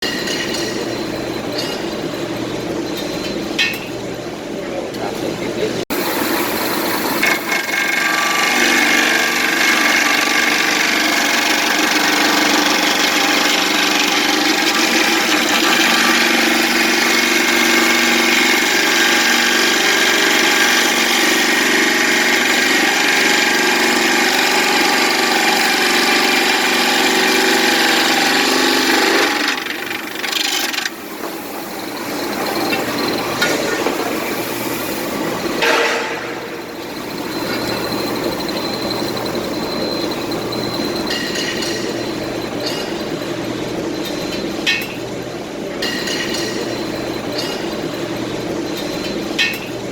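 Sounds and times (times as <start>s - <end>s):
cutting machine running: 5.9s - 41.1s
saw blade screeching through metal: 6.0s - 33.5s, 35.5s - 41.9s.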